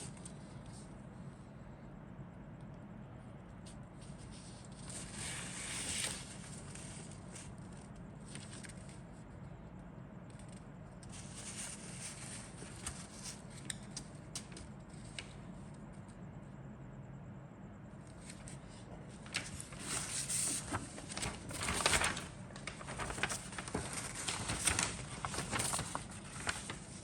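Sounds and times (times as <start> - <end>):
plastic packaging rustling: 18.2 - 27.0.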